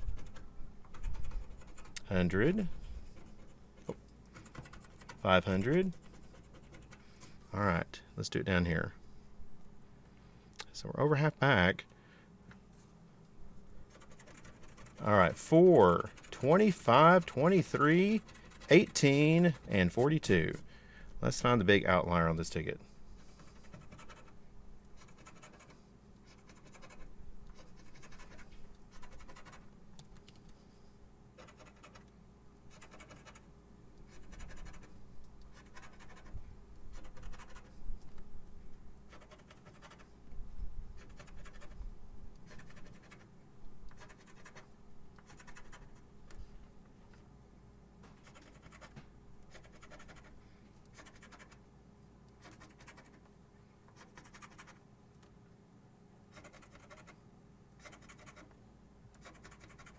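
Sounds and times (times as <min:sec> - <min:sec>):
lottery ticket being scratched: 0:00.0 - 0:07.8, 0:13.8 - 0:20.7, 0:23.2 - 0:24.4, 0:25.0 - 0:29.7, 0:31.4 - 0:32.1, 0:32.7 - 0:33.5, 0:34.1 - 0:37.8, 0:39.1 - 0:40.2, 0:42.4 - 0:43.3, 0:48.2 - 0:51.6, 0:52.4 - 0:53.2, 0:53.9 - 0:54.8, 0:57.8 - 0:58.5, 0:59.2 - 0:59.9
faint steady hum: 0:00.0 - 0:59.9.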